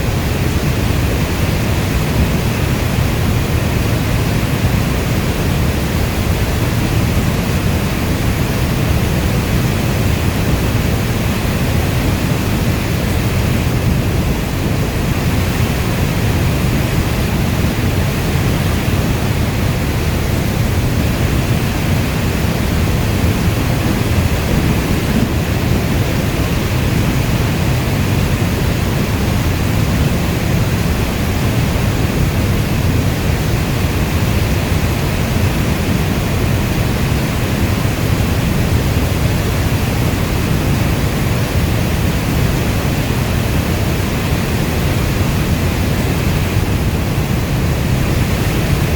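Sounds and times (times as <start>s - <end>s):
heavy rainstorm: 0.0s - 48.9s.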